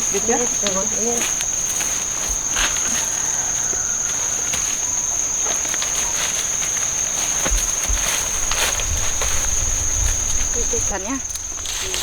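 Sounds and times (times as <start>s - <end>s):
insects droning: 0.0s - 12.0s
dull bumps: 7.1s - 12.0s.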